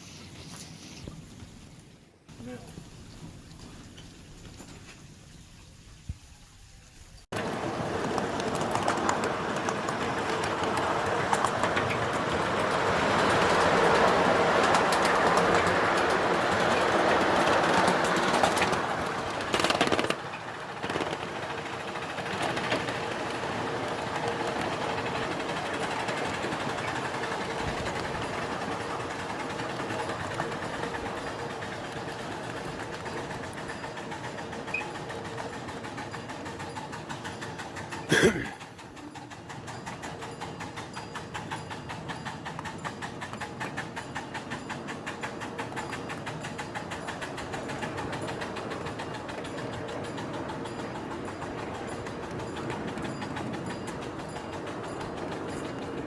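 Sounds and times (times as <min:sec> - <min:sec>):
miniature train running: 0:07.3 - 0:56.0
fast even clicking: 0:13.3 - 0:27.0.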